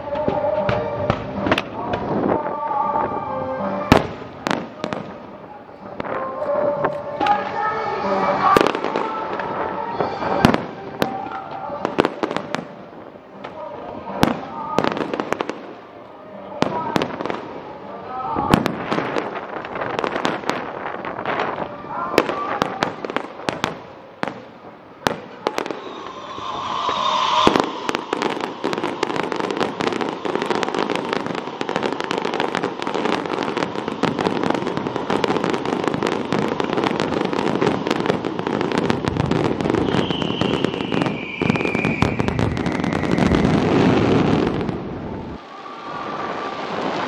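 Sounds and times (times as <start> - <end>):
firework bursts and crackling: 3.9 - 16.0, 16.6 - 47.0
high firework whistle: 7.2 - 12.0, 25.4 - 44.7.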